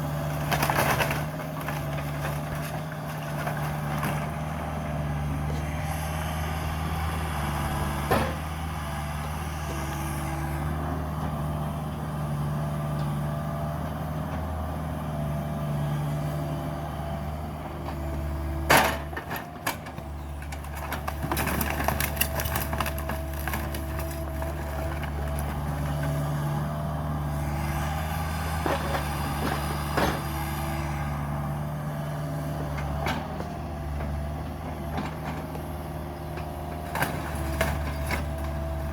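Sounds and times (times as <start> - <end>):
diesel excavator engine running: 0.0 - 38.9
wood splintering and crackling: 0.2 - 4.2, 20.0 - 26.4.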